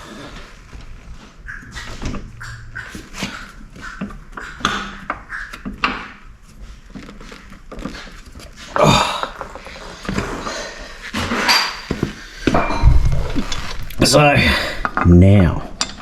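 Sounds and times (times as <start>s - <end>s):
metal parts and tools knocking: 14.8s - 16.0s.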